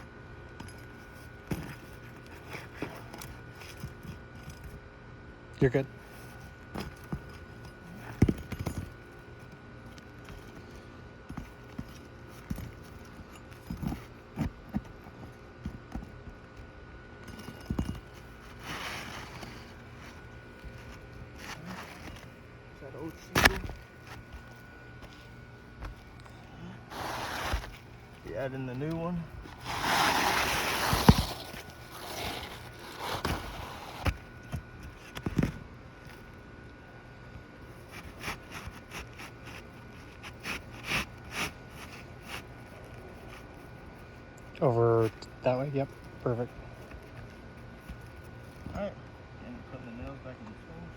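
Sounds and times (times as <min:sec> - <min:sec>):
tool scraping: 0:17.2 - 0:35.6, 0:37.7 - 0:43.8.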